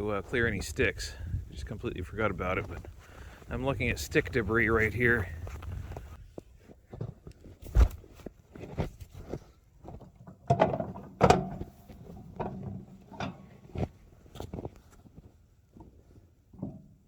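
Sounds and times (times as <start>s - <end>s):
metal clunks and scrapes: 9.9s - 14.7s.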